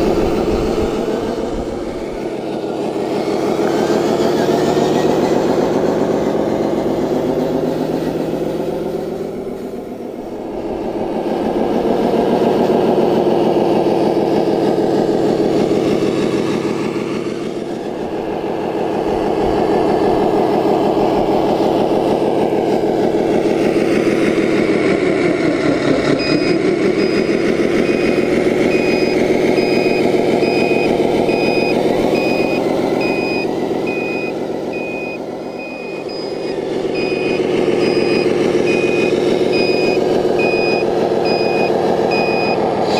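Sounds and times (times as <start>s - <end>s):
simulated truck engine revving: 0.0s - 42.9s
reversing beeps: 26.1s - 42.9s.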